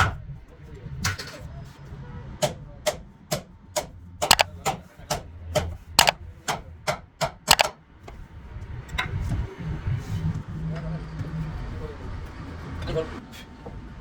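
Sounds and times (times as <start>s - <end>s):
sharp hammer taps: 7.2s - 7.7s.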